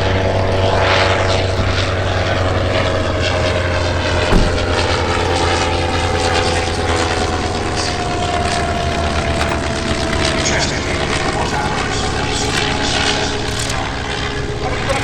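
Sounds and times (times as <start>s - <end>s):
propeller aircraft engine: 0.0s - 15.0s
thump: 1.6s - 2.6s, 4.2s - 5.4s.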